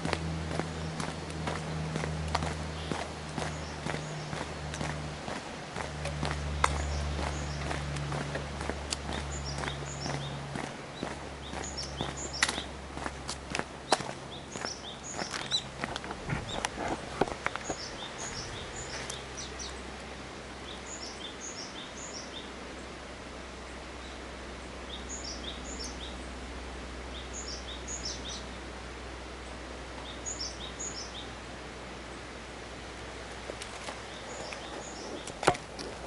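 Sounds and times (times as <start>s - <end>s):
footsteps on a trail: 0.0s - 19.8s, 33.2s - 36.0s
steady outdoor hiss: 0.0s - 36.0s
small bird singing: 0.7s - 4.9s, 6.2s - 12.8s, 13.8s - 15.7s, 17.4s - 19.9s, 20.6s - 22.5s, 24.9s - 26.3s, 27.1s - 28.6s, 30.0s - 31.4s, 34.0s - 36.0s.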